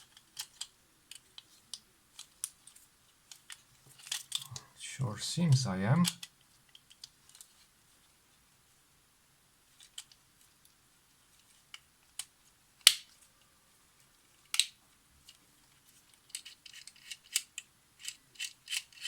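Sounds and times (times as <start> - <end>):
small metallic clicks: 16.1 - 19.0.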